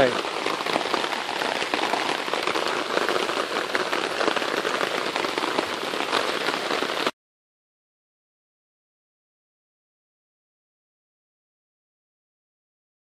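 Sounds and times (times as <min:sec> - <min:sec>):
rain pattering on a tarp: 0:00.0 - 0:07.2.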